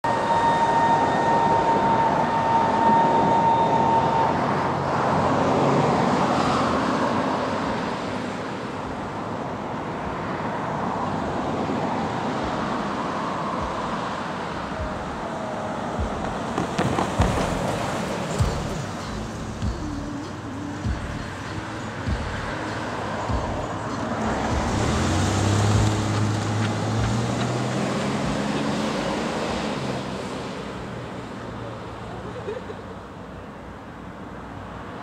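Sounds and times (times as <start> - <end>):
steady high tone: 0.0 - 5.6, 12.2 - 25.3
distant train approaching: 0.0 - 7.2, 11.1 - 30.8
traffic-like rumble: 0.0 - 35.0.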